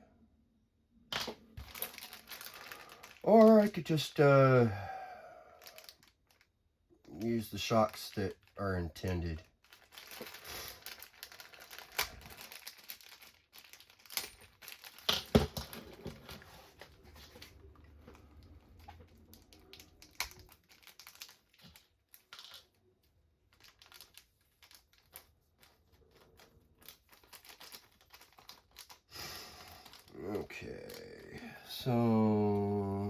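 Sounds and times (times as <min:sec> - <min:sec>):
plastic bag crinkling: 0:01.4 - 0:04.1, 0:05.6 - 0:06.5, 0:07.2 - 0:16.2, 0:16.9 - 0:31.4
small hard parts clicking: 0:23.5 - 0:31.1.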